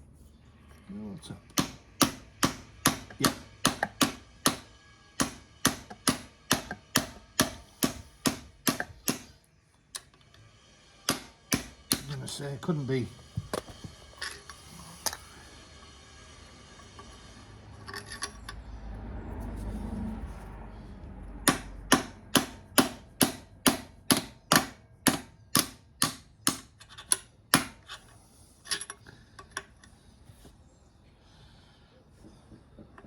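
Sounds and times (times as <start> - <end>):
hand tool ratchet clicks: 11.1 - 12.3, 21.5 - 29.9
low rumble of handling: 16.6 - 21.4.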